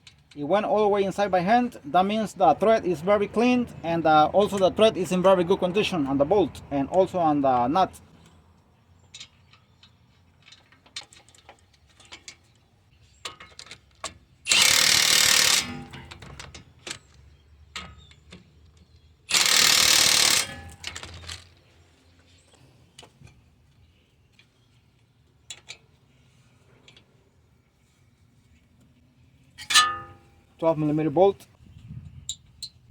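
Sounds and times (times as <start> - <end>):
impact wrench running: 14.5 - 16.0, 19.3 - 20.8
tools clicking and knocking: 29.6 - 30.2.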